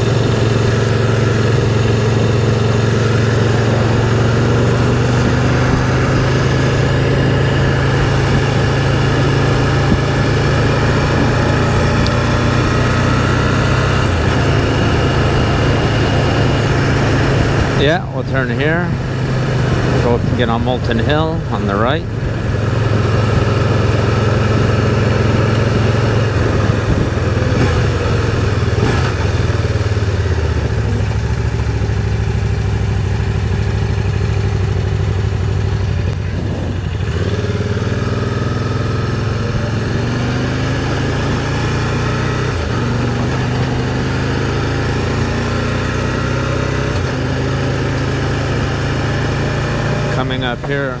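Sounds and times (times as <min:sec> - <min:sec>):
motorcycle engine accelerating: 0:00.0 - 0:51.0
wind and road noise: 0:00.0 - 0:51.0.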